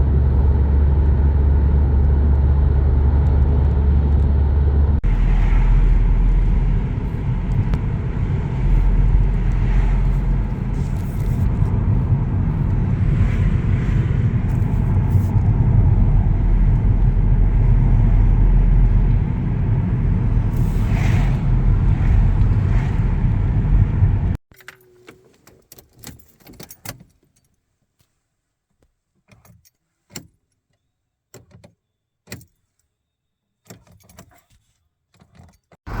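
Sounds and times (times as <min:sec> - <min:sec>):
loud low rumble: 0:00.0 - 0:24.4.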